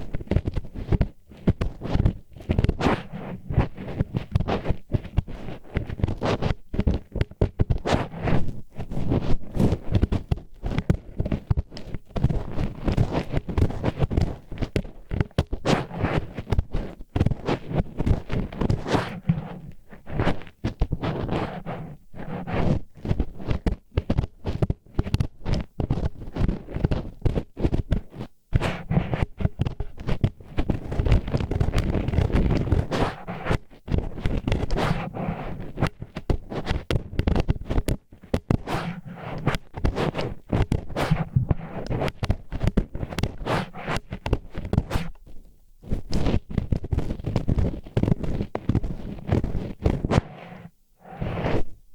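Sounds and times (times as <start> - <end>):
chopsticks scraping in ear: 32.3 - 33.6, 34.5 - 47.7, 48.6 - 51.8.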